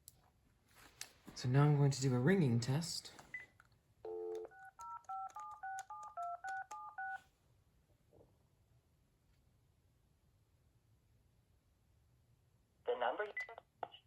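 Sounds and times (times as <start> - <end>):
telephone touch tone beeps: 4.1 - 7.2.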